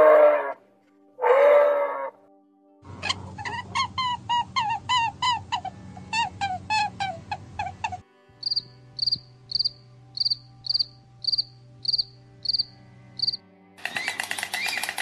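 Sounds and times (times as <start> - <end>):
insect chirping: 8.4 - 13.4.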